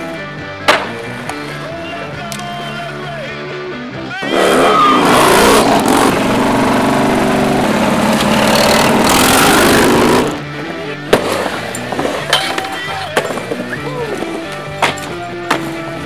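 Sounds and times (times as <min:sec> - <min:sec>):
motorcycle engine revving: 0:04.2 - 0:12.3.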